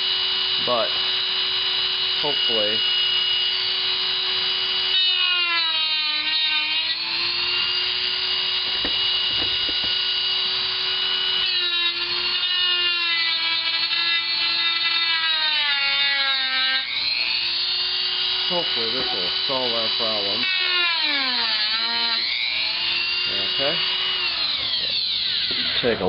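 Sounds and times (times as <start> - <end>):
rotary tool cutting plastic: 0.0 - 26.0
small knocks: 8.8 - 10.0.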